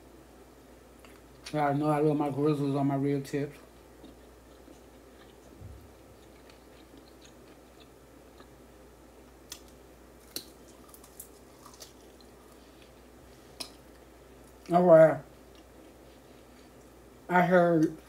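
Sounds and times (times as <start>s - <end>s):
person chewing meat: 3.5s - 14.7s, 15.3s - 17.0s.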